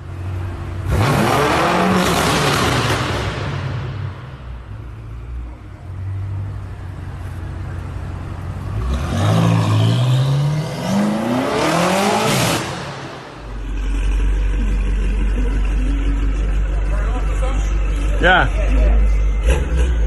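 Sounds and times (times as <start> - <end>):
deep steady engine rumble: 0.0 - 1.1, 3.4 - 10.6, 12.8 - 20.0
car engine accelerating: 0.0 - 20.0.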